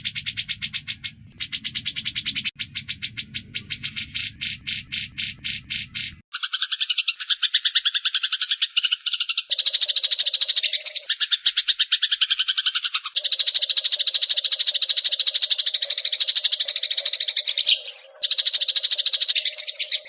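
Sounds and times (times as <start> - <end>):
songbird trilling high notes: 0.0 - 20.0.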